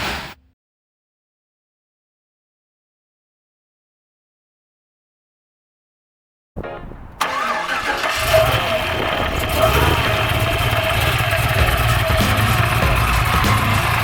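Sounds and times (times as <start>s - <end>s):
car engine starting and idling: 6.6s - 14.0s.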